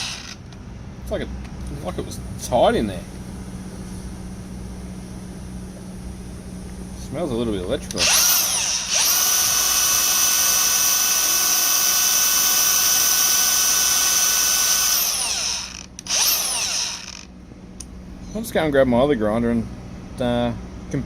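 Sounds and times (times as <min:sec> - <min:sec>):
angle grinder motor whining: 0:00.0 - 0:00.5, 0:07.9 - 0:17.3.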